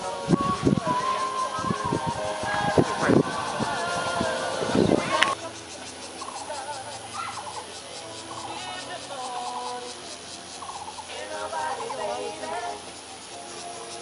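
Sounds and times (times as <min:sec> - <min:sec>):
faint steady background noise: 0:00.0 - 0:14.0
pulsed trilling animal calls: 0:00.0 - 0:14.0.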